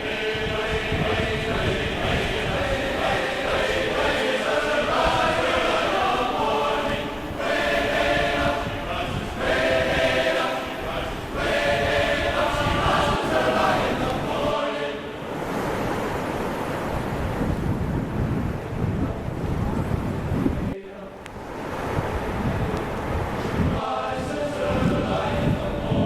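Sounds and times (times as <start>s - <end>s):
choir singing: 0.0s - 15.6s, 20.7s - 21.7s, 23.4s - 26.0s
low rush of noise: 0.0s - 26.0s.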